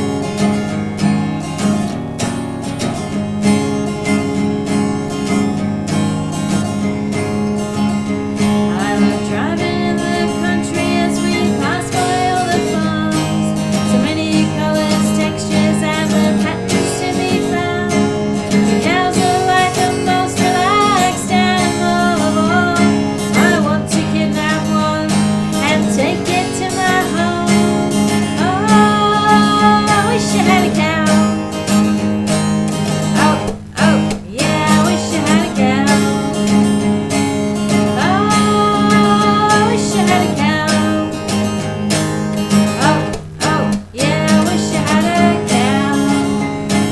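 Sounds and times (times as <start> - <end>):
acoustic guitar strumming: 0.0 - 46.9.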